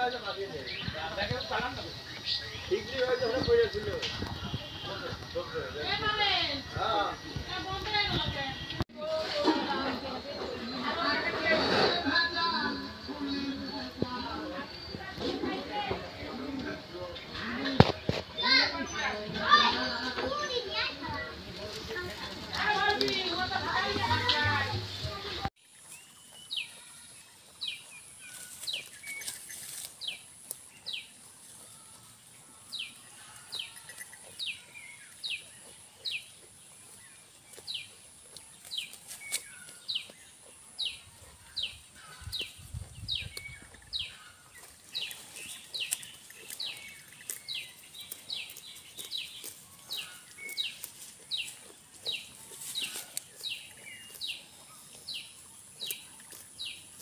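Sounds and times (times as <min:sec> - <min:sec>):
rustles: 0:14.9 - 0:57.0.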